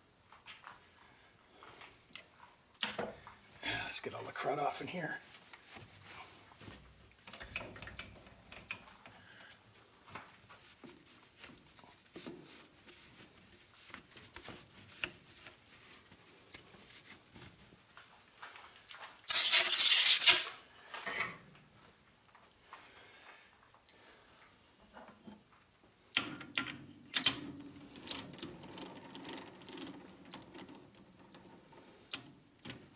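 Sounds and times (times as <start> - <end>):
compressed air blow gun hissing: 19.3 - 20.5
metal part clicking and scraping: 19.3 - 21.3.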